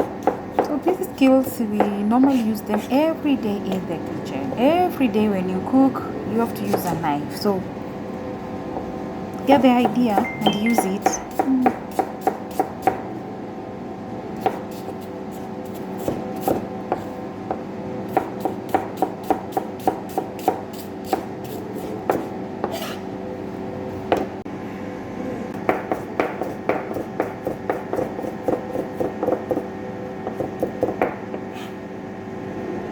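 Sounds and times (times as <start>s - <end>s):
knife chopping on chopping board: 0.0s - 0.7s, 10.8s - 13.1s, 14.4s - 23.0s, 25.7s - 31.7s.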